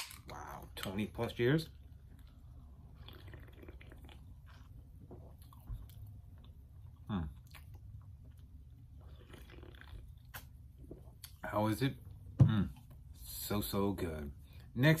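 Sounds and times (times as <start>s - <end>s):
person sipping and swallowing: 2.1s - 11.4s.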